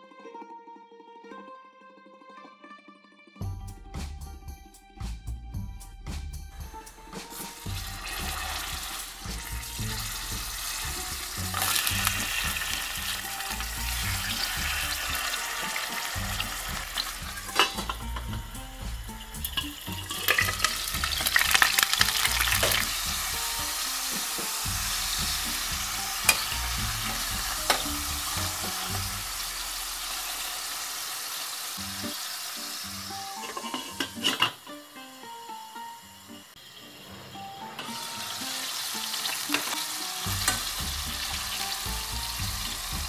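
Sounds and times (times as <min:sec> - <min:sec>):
loud crackling of frying: 0:07.1 - 0:34.9, 0:37.7 - 0:43.0
meat frying in oil: 0:07.3 - 0:34.4, 0:37.8 - 0:43.0
metal clicks of lid and tongs: 0:17.5 - 0:18.0.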